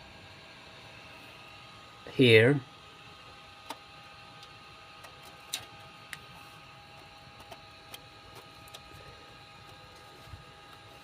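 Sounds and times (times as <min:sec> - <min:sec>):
faint steady hum: 0:00.0 - 0:11.0
small parts clicking and tapping: 0:07.3 - 0:09.0.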